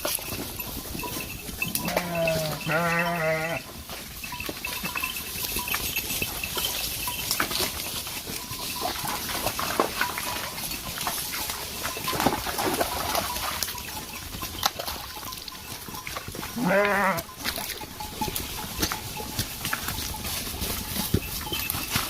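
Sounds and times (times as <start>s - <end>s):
livestock bleat: 1.6s - 3.7s, 16.4s - 17.7s
scattered clicks and knocks: 17.4s - 22.0s.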